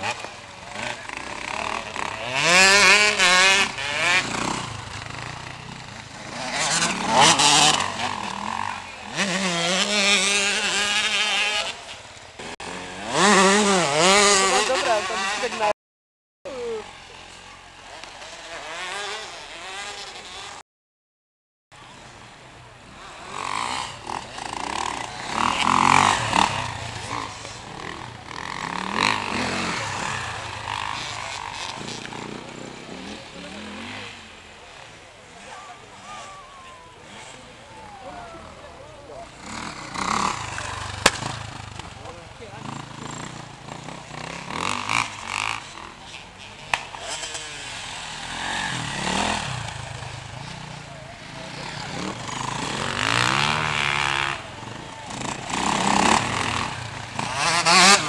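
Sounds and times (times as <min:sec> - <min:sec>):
motocross bikes racing past: 0:00.0 - 0:15.8, 0:16.5 - 0:20.6, 0:21.8 - 0:58.0
sharp snap: 0:41.0 - 0:41.4.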